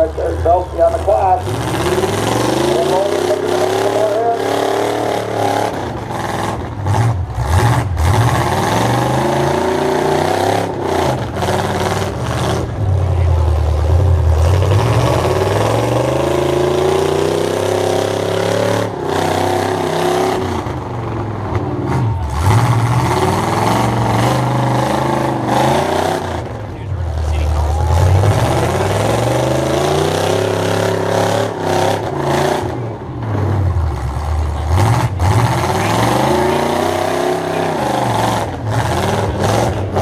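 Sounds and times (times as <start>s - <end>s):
truck engines revving: 0.0s - 40.0s
trucks crashing together: 0.0s - 40.0s.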